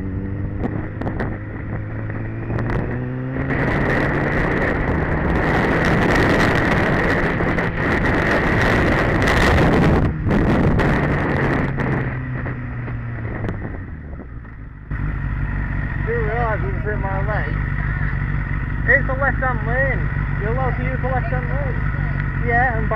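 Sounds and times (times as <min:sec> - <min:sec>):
wind rush on microphone: 0:00.0 - 0:14.8
motorcycle engine hum: 0:00.0 - 0:22.9
road noise: 0:00.0 - 0:22.9.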